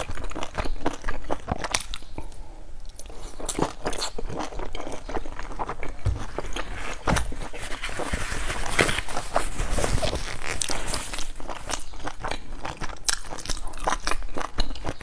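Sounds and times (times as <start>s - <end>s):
person chewing a dumpling: 0.0s - 7.6s, 10.0s - 15.0s.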